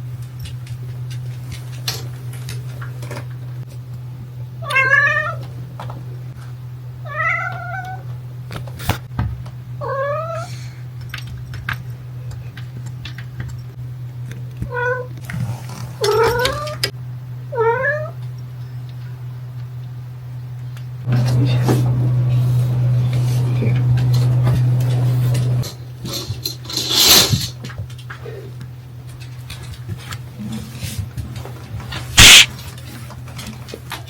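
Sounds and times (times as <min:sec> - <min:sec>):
steady low hum: 0:00.0 - 0:33.8
cat meowing: 0:04.6 - 0:05.4, 0:07.0 - 0:08.1, 0:09.8 - 0:10.6, 0:14.6 - 0:15.2, 0:16.0 - 0:16.9, 0:17.5 - 0:18.2, 0:32.2 - 0:32.5.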